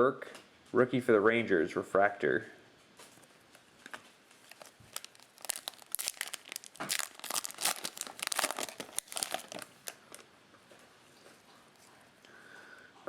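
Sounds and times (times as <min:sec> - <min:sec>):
cellophane wrapper crinkling: 0:03.0 - 0:10.3.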